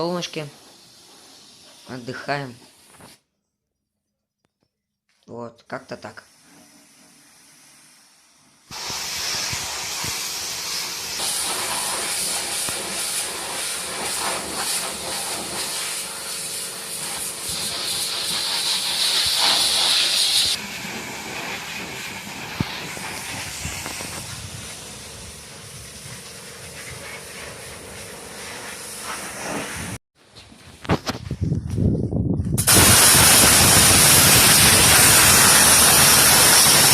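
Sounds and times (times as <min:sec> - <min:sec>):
pressure washer spraying: 0:00.2 - 0:02.9, 0:08.7 - 0:30.0, 0:32.6 - 0:36.9.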